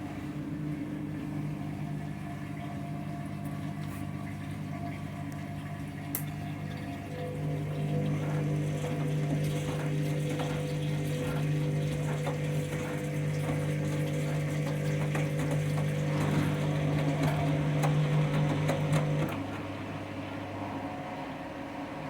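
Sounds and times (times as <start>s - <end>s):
washing machine motor hum: 0.0s - 22.0s.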